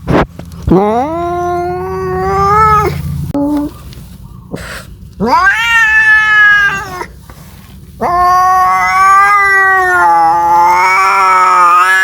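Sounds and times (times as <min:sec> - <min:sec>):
cat yowling: 0:00.8 - 0:03.0, 0:05.2 - 0:07.1, 0:08.0 - 0:12.0.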